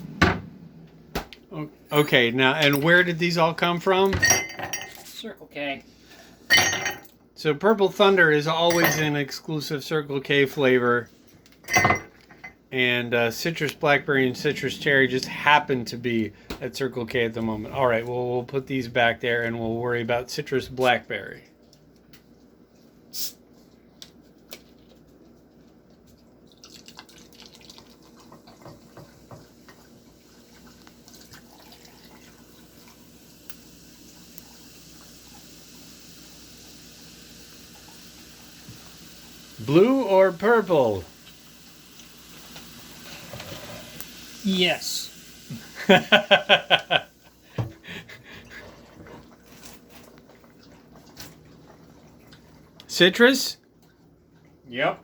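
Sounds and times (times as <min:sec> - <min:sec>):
soda fizzing as poured: 0:26.4 - 0:47.6.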